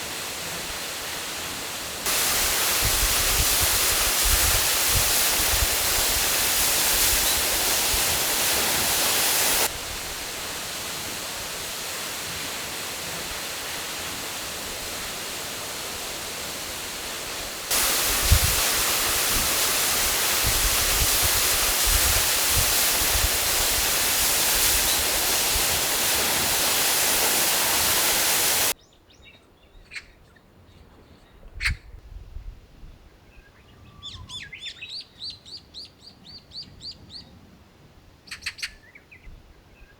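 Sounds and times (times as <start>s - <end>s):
birds chirping: 5.5s - 9.7s, 23.3s - 30.2s
loud outdoor rushing noise: 17.6s - 28.8s.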